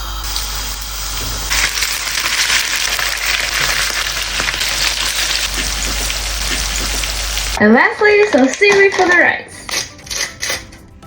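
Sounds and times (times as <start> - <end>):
fish sizzling in a frying pan: 0.0 - 7.6.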